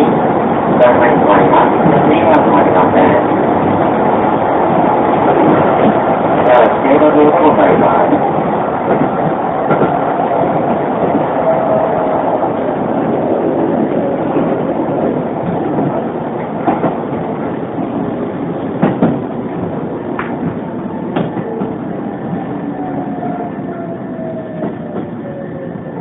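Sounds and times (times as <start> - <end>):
train wheels rumbling on track: 0.0 - 26.0
clacks over rail joints: 8.9 - 10.0, 14.3 - 18.1, 18.7 - 22.4.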